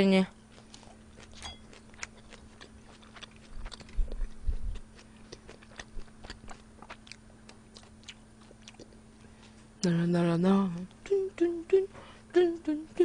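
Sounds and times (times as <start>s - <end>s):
steady low hum: 0.0s - 13.0s
close chewing mouth clicks: 0.6s - 9.0s.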